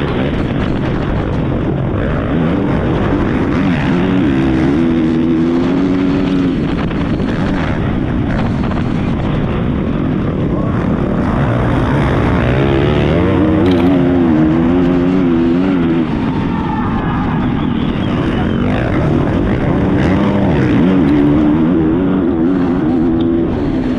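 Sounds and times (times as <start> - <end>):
wind noise: 0.0 - 23.9
track noise: 7.8 - 23.9
motocross bike engine revving: 10.7 - 16.1.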